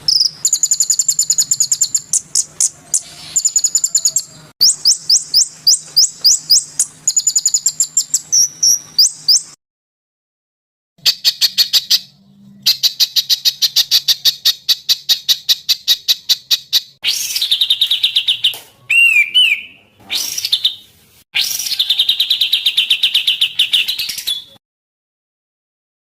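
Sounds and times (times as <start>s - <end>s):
songbird trills: 0.0s - 9.6s.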